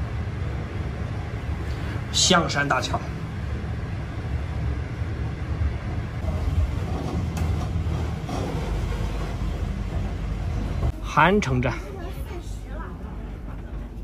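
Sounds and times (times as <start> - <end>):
train rumbling inside carriage: 0.0 - 14.0.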